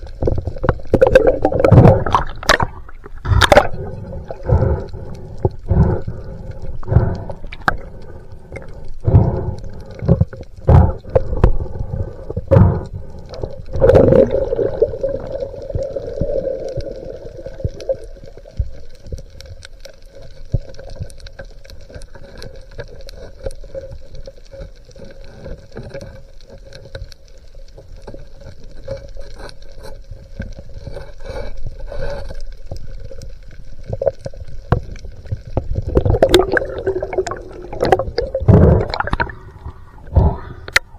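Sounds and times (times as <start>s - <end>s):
steady underwater noise: 0.0s - 40.9s
water gurgling: 0.0s - 40.9s
underwater knocks and thumps: 0.1s - 4.7s, 10.1s - 11.6s, 33.9s - 39.4s
fine crackling clicks: 14.6s - 39.8s, 40.6s - 40.9s.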